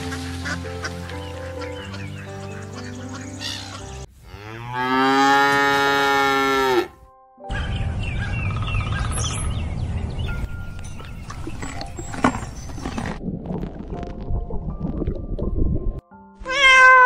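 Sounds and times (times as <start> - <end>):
small birds chirping: 1.1 - 4.1, 7.5 - 13.0
cow mooing: 4.2 - 7.0.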